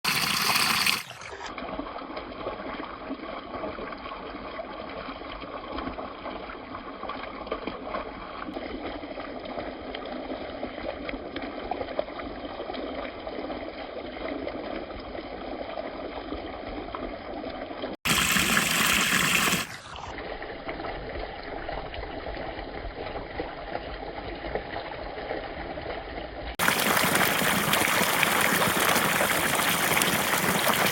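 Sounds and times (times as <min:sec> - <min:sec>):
water splashing at waterfall: 0:18.1 - 0:20.1, 0:26.6 - 0:30.9.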